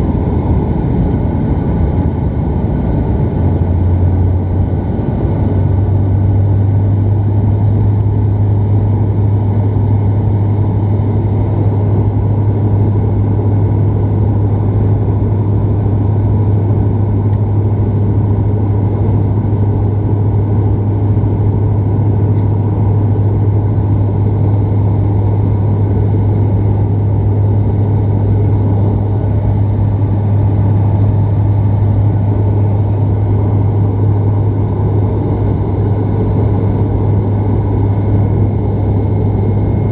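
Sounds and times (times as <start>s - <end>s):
loud low propeller drone: 0.0s - 39.9s
rush of engines and airflow: 0.0s - 39.9s.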